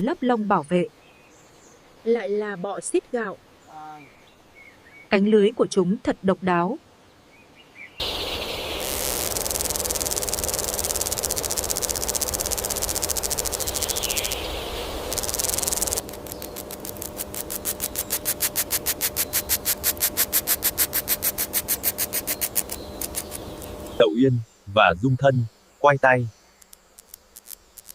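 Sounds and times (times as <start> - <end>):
insect pulsed call: 8.0 - 27.9
insects buzzing trill: 8.0 - 27.9.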